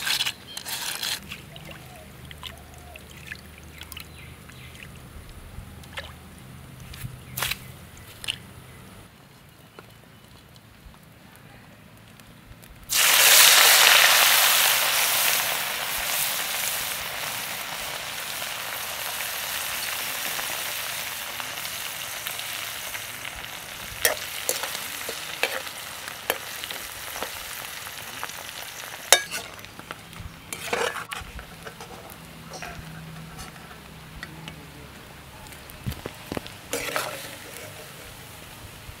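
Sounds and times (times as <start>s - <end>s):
food sizzling in hot oil: 12.9s - 34.1s, 35.8s - 39.0s.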